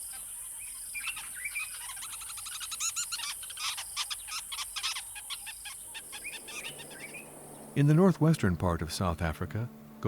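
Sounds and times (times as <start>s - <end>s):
high chirping animal calls: 1.0s - 7.8s
steady high hiss: 5.8s - 10.0s.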